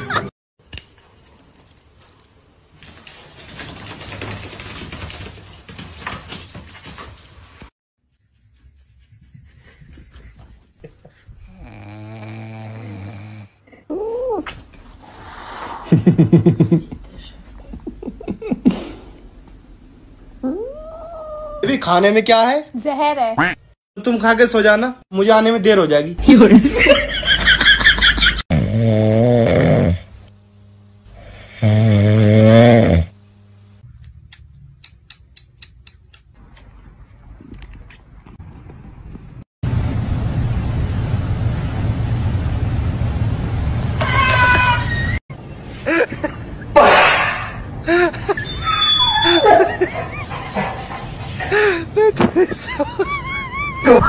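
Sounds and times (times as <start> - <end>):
man snoring: 11.5 - 13.6, 28.5 - 30.1, 31.1 - 33.2.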